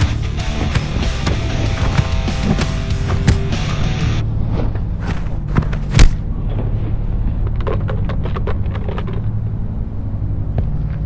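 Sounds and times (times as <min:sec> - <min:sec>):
fight impacts: 0:00.0 - 0:06.3
scuffs: 0:00.0 - 0:06.3
steady low rumble: 0:00.2 - 0:11.0.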